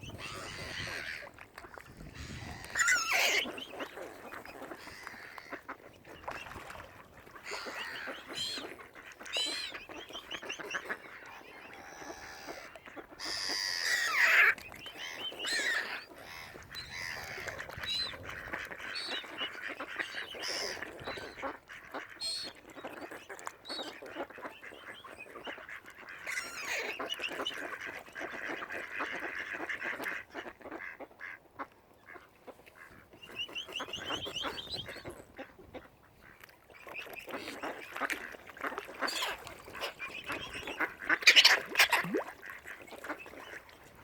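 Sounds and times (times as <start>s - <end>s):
ducks and geese calling: 0.1s - 23.2s, 32.0s - 44.0s.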